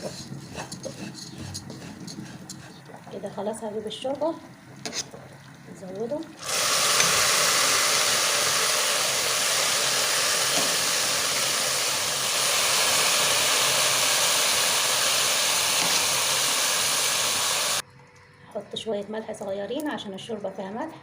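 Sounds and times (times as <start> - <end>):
broth pouring: 5.1 - 17.8
broth sizzling in hot pot: 6.4 - 17.8.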